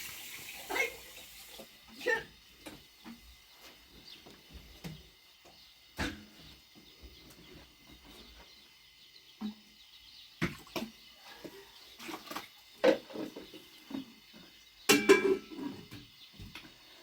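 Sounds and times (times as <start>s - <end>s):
faint steady background noise: 0.0s - 17.0s.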